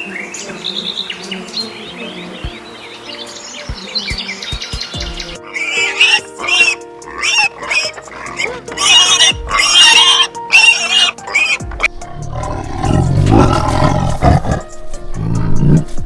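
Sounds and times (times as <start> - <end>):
background music: 0.0 - 16.0
high-pitched animal calls: 5.4 - 14.7
deep roar: 12.1 - 16.0.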